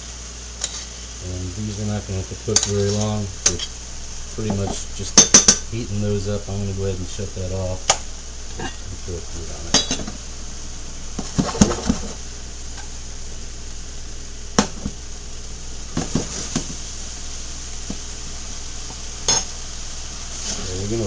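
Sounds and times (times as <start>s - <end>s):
food sizzling in skillets: 0.0s - 21.0s
pan and utensil clinks: 19.2s - 19.6s.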